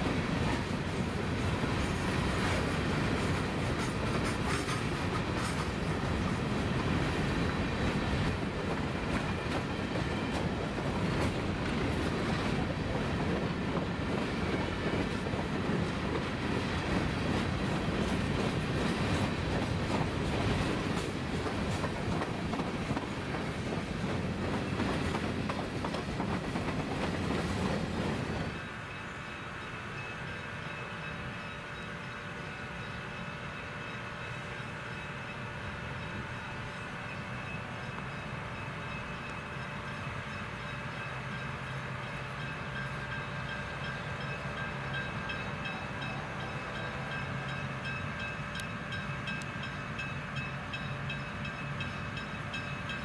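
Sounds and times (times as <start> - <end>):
wheels clicking over rail joints: 0.0 - 28.7
diesel locomotive running: 0.0 - 53.0.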